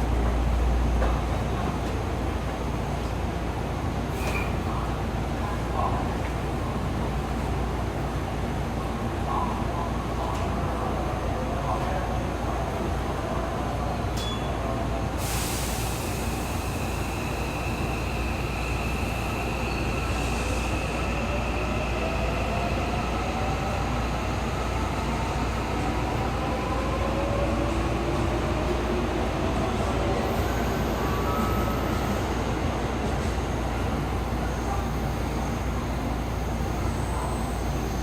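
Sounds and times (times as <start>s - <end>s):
air hiss: 15.2s - 18.2s.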